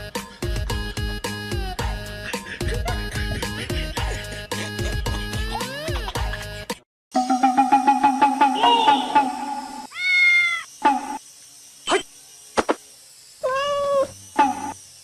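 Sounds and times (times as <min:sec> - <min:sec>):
cat meowing: 0:09.9 - 0:10.7, 0:13.4 - 0:14.1.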